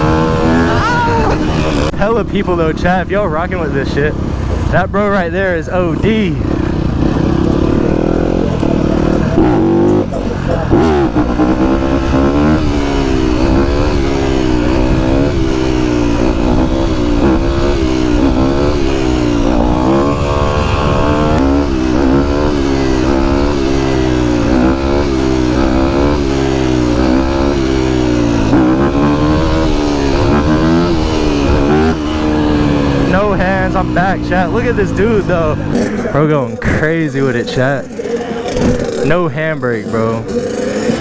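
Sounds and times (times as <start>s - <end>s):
small engine revving: 0.0s - 41.0s.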